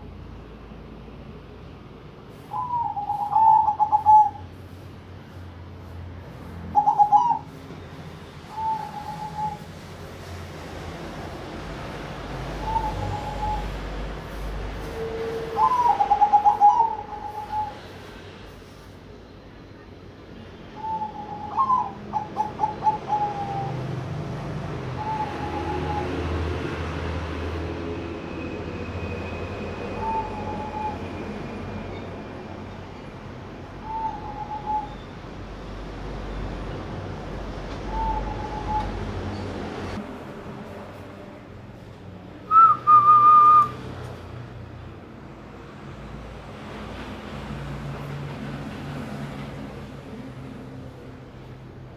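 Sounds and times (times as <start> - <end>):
dove cooing: 2.6 - 4.4, 6.7 - 7.6, 8.5 - 9.7, 12.6 - 13.8, 15.5 - 17.8, 20.8 - 23.9, 24.8 - 26.3, 33.8 - 35.0, 37.9 - 39.0.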